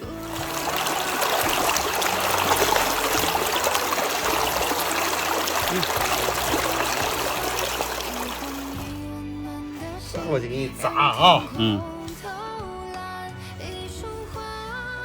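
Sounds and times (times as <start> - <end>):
water trickling: 0.0 - 9.0.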